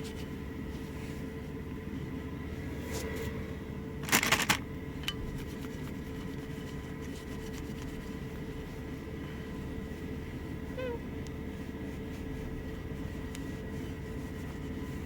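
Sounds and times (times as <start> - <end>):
wipe rubbing over a plate: 0.0 - 1.6, 5.2 - 15.0.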